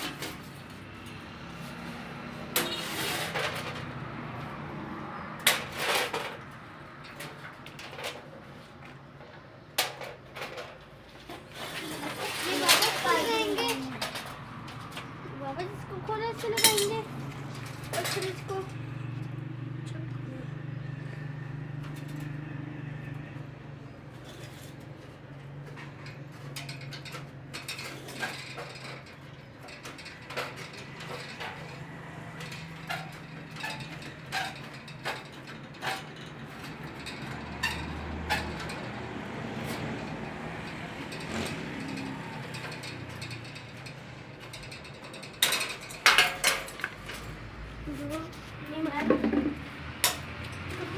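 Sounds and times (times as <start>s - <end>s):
sharp clicks and knocks: 24.2s - 47.6s, 48.2s - 50.9s.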